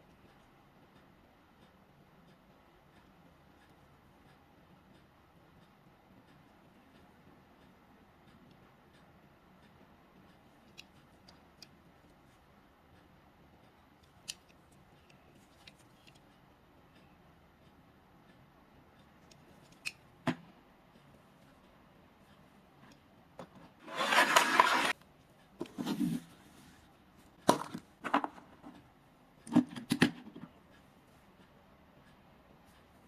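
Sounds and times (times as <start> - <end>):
packaging scraping rustle: 23.8 - 24.9.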